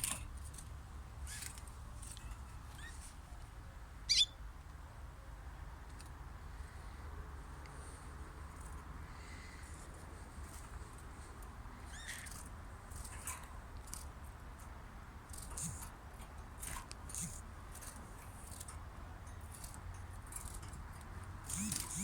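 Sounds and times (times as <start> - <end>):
cage birds chirping: 0.0 - 7.0, 7.8 - 22.0
steady low hum: 21.4 - 22.0.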